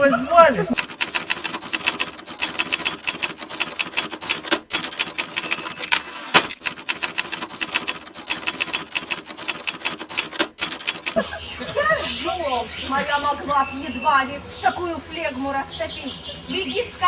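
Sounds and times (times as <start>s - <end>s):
rapid sharp clicks: 0.8s - 11.2s.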